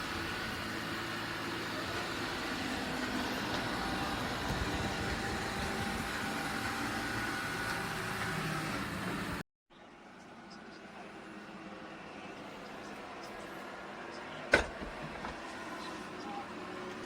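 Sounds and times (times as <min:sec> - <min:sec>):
robot vacuum whirring: 0:00.0 - 0:09.4.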